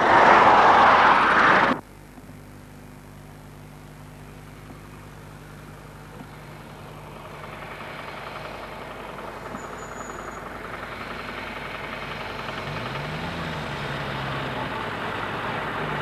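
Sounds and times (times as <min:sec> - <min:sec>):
old car engine running: 0:03.8 - 0:16.0.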